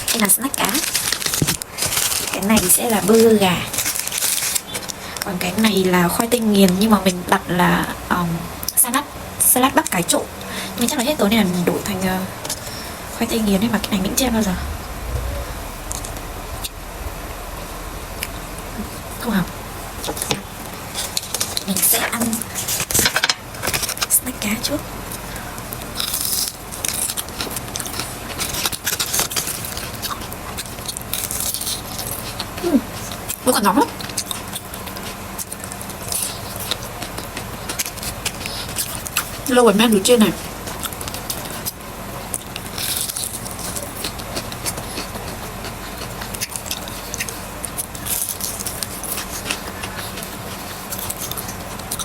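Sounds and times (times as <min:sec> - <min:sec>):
faint steady hum: 0:00.0 - 0:52.0
crunching bites of fried snack: 0:25.9 - 0:32.5, 0:40.7 - 0:52.0.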